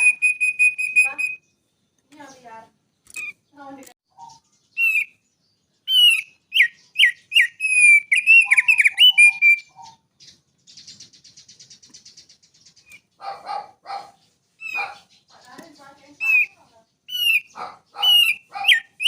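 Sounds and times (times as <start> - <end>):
songbird whistled notes: 0.0 - 2.4, 4.1 - 5.2, 5.8 - 13.1, 14.6 - 19.0
buzzy high bird trill: 0.0 - 19.0
harsh bird notes: 3.1 - 13.3, 14.0 - 19.0.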